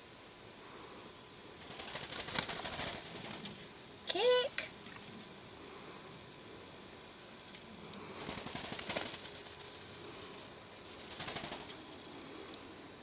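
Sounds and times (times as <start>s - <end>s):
faint high insect buzz: 0.0s - 13.0s
bird wings flapping: 1.6s - 3.6s, 8.2s - 11.8s.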